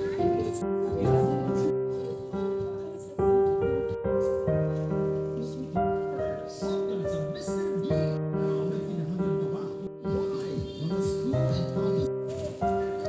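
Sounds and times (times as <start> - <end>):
soft piano music: 0.0 - 13.0.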